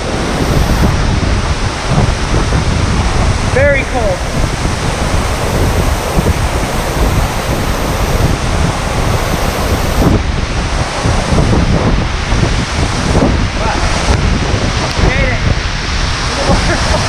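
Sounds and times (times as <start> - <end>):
waterfall rushing: 0.0 - 2.0, 3.3 - 11.1.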